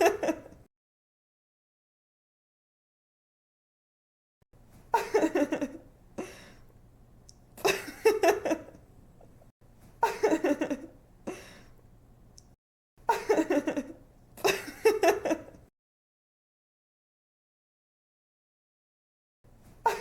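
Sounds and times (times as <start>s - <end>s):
woman giggling: 0.0s - 0.6s, 4.9s - 6.4s, 7.6s - 8.8s, 10.0s - 11.5s, 13.1s - 15.6s.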